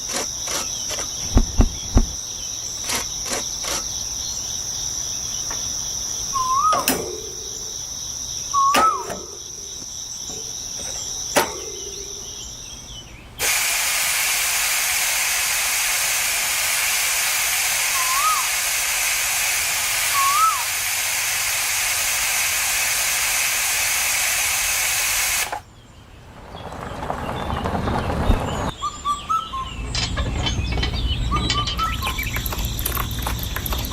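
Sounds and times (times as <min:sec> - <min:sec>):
high insect-like buzz: 0:00.0 - 0:12.5, 0:13.5 - 0:24.2
loud steady hiss: 0:00.0 - 0:25.7
short whistled chirps: 0:06.4 - 0:06.9, 0:17.9 - 0:18.6, 0:20.1 - 0:20.7.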